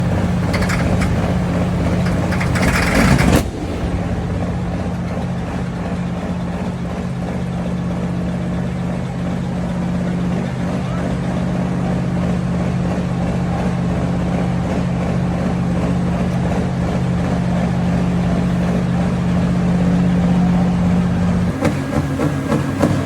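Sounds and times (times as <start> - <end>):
tractor engine revving: 0.0 - 23.0.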